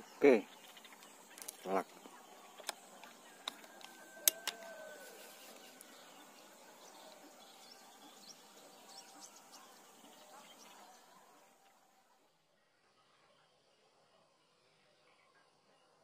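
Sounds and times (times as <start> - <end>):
faint bird chirps: 0.0 - 16.0
open-air background noise: 0.0 - 16.0
sharp clicks: 2.5 - 4.8.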